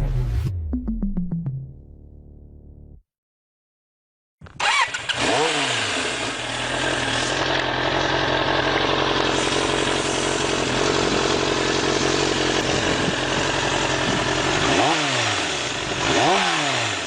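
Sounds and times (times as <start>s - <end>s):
motorcycle engine starting and idling: 4.4s - 17.0s.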